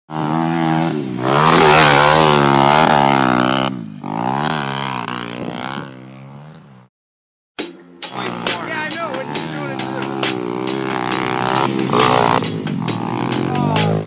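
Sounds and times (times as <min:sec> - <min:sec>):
pit bike engine revving: 0:00.1 - 0:06.9, 0:08.0 - 0:14.0.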